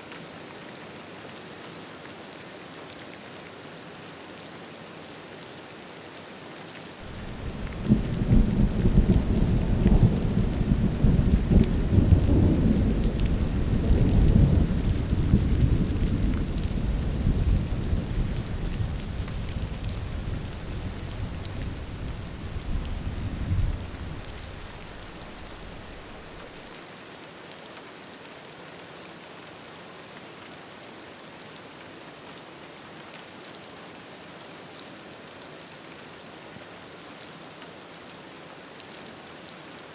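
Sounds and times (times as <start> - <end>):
steady rain: 0.0 - 39.9
thunder rolling: 7.0 - 26.6.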